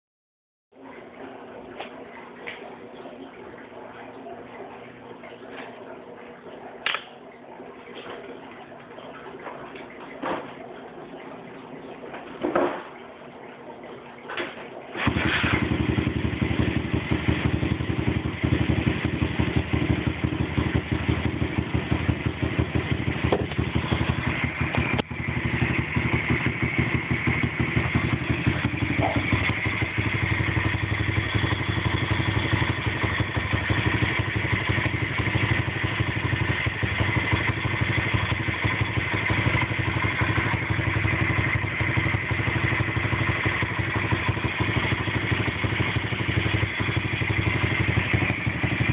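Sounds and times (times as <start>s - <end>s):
motorbike engine idling: 15.0s - 48.9s.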